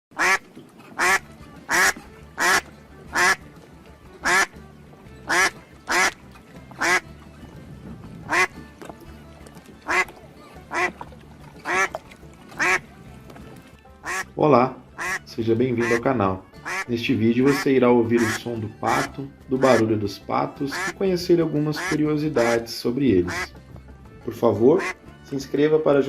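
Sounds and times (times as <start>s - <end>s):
duck quacking: 0.1s - 3.4s, 4.2s - 4.6s, 5.2s - 6.2s, 6.8s - 7.1s, 8.2s - 8.6s, 9.8s - 11.0s, 11.6s - 11.9s, 12.6s - 12.8s, 14.0s - 14.3s, 15.0s - 19.9s, 20.7s - 21.0s, 21.7s - 23.6s, 24.8s - 25.0s
faint background music: 0.1s - 26.0s.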